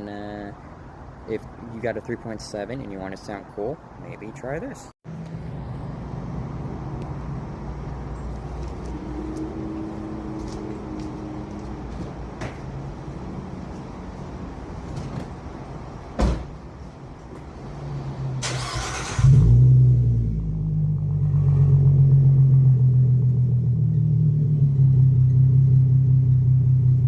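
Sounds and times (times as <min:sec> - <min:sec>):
car exhaust rumble: 0:19.2 - 0:27.0.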